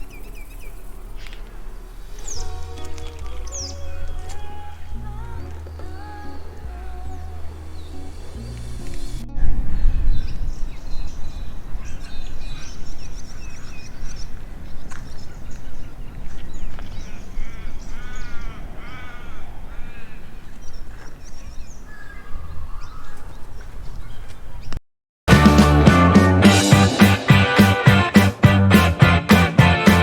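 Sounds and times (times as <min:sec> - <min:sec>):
birds chirping and whistling: 0:00.0 - 0:19.4, 0:20.0 - 0:24.7
harsh bird caws: 0:17.0 - 0:20.5.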